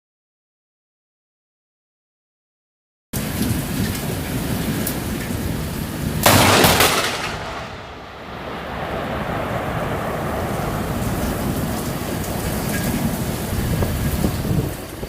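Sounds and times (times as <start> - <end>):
heavy rain hissing: 3.2 - 15.0
thunder crack: 6.2 - 15.0.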